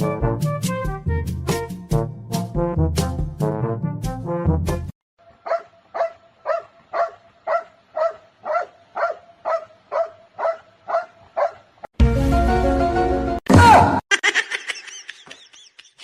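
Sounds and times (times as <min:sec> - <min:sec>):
dog barking: 0:05.4 - 0:11.7.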